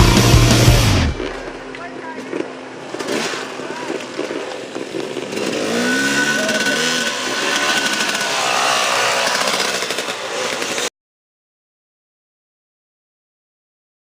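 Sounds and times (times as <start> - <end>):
dirt bike engine revving: 0.0 - 10.9.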